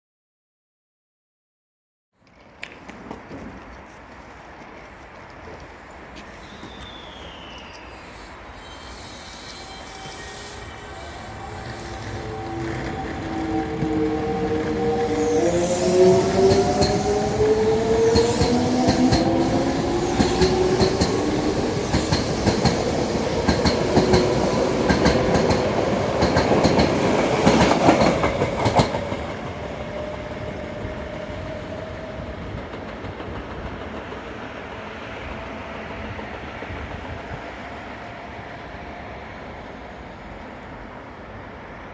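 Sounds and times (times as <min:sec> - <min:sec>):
train rumble: 0:02.4 - 0:41.9
train motor whine: 0:06.2 - 0:23.4
train wheels clacking: 0:11.6 - 0:30.1.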